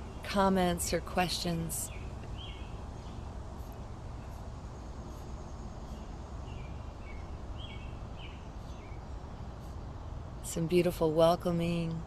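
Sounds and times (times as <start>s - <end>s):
background hiss and low hum: 0.0s - 12.0s
bird chirps: 1.8s - 4.4s, 5.1s - 9.1s.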